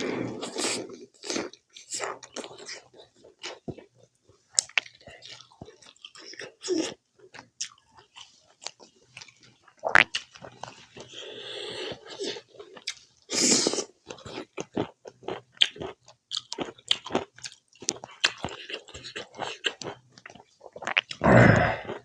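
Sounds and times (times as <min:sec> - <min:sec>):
close chewing with wet clicks: 0:01.2 - 0:11.1, 0:12.2 - 0:13.1, 0:14.0 - 0:21.2.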